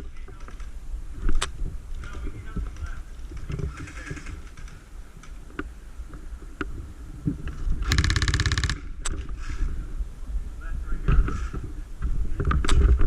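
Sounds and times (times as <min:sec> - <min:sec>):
airsoft gun rapid shots: 0:07.9 - 0:08.8.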